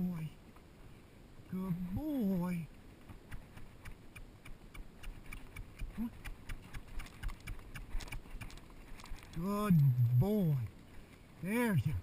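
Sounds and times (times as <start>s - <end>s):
horse hooves on rocky ground: 2.9s - 12.0s.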